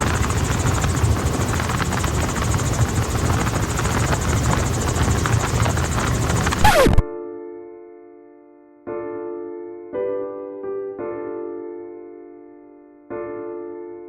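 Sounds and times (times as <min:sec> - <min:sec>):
helicopter rotor and engine: 0:00.0 - 0:07.0.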